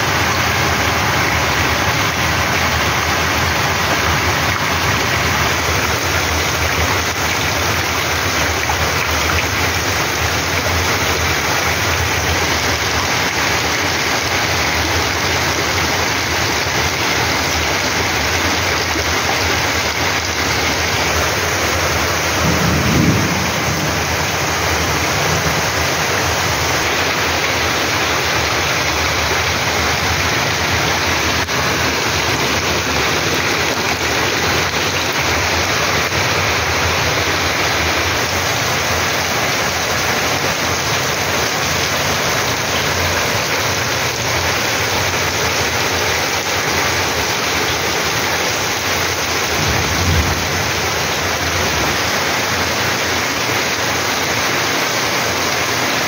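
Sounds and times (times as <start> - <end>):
heavy rain on paving: 0.0 - 56.0.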